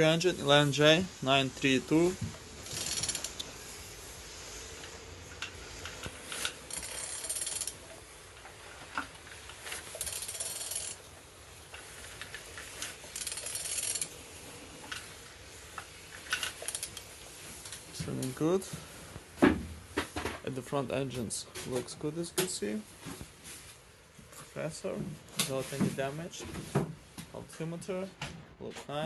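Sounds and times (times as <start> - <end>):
ratchet wrench clicking: 2.6 - 3.5, 6.3 - 7.8, 9.6 - 11.0, 12.2 - 14.2, 16.2 - 17.8.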